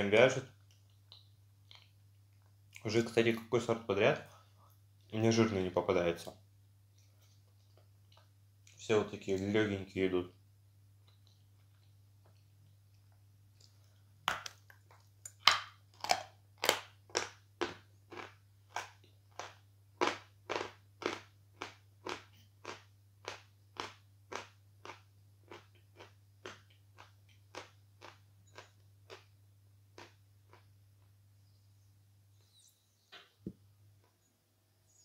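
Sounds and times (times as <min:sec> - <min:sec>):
chalk crunching while chewed: 0:13.6 - 0:29.3.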